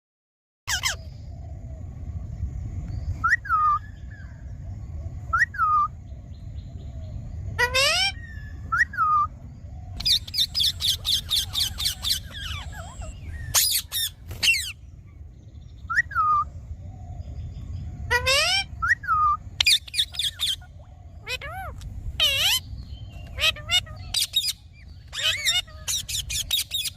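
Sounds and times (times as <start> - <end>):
parakeet squawks and chirps: 0.7 - 1.2, 7.6 - 9.3, 9.9 - 15.0, 18.1 - 26.9
low background rumble: 0.7 - 26.9.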